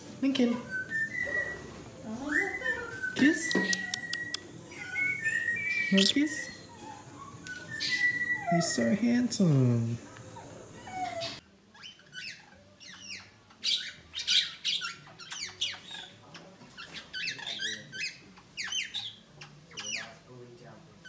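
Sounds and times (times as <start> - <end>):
budgerigar chattering: 3.5 - 8.5, 11.0 - 20.3.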